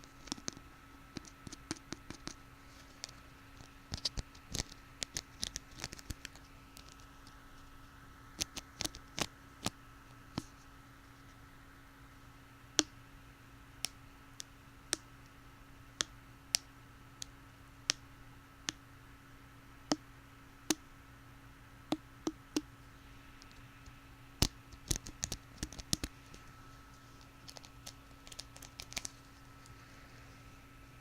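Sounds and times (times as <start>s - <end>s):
plastic hair pick clicking: 27.4s - 29.1s.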